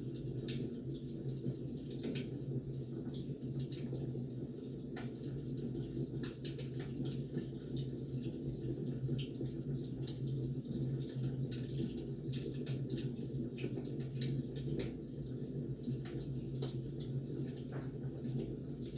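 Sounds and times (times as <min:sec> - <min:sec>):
firewood crackling and popping: 0:09.2 - 0:15.0.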